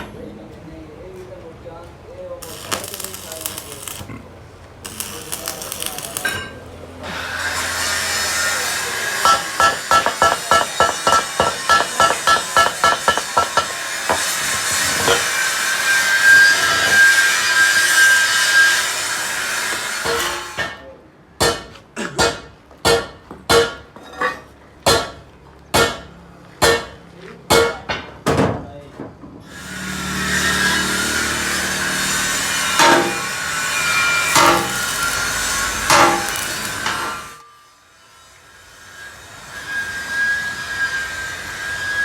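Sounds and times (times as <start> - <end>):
rough metal scraping: 2.4 - 4.2, 4.8 - 18.6, 29.9 - 41.2
ringing hammer blows: 7.6 - 14.4, 31.7 - 38.0.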